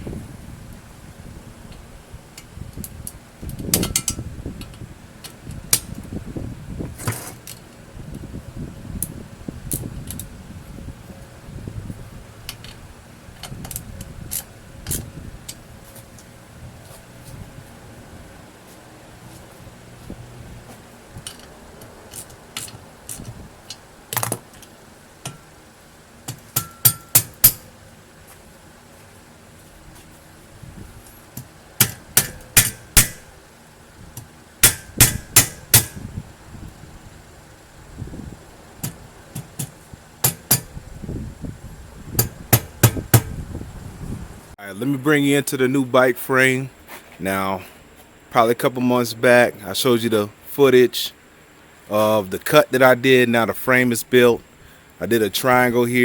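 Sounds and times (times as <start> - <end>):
sharp metal clanks: 3.7 - 4.2, 26.3 - 27.7, 31.8 - 33.3, 34.6 - 36.0
metal tools clinking and knocking: 3.8 - 4.2.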